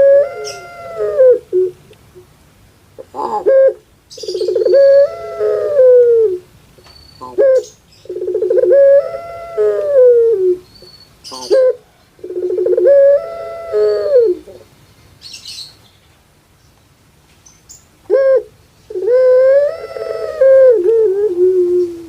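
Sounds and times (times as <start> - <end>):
dove cooing: 0.0 - 1.9, 3.0 - 6.5, 7.2 - 10.7, 11.3 - 14.7, 18.1 - 22.0.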